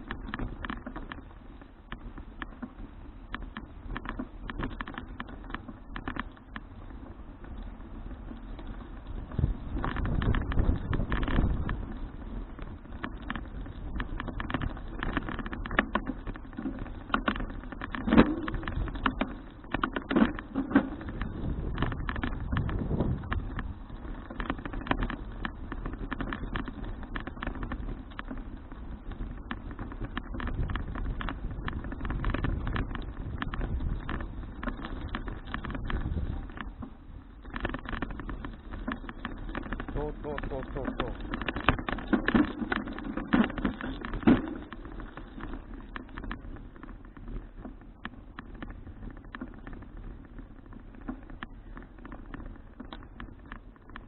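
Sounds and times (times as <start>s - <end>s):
clicks and rattles: 0.0s - 54.0s
low rumble of bicycle ride: 0.0s - 54.0s
wind on camera microphone: 7.3s - 54.0s
low rumble: 20.6s - 24.6s.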